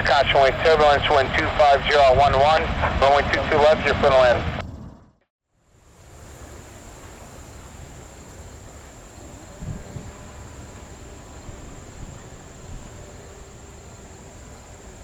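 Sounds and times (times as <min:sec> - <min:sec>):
low wind rumble: 0:00.0 - 0:05.2, 0:05.8 - 0:15.0
insect chorus: 0:05.9 - 0:15.0.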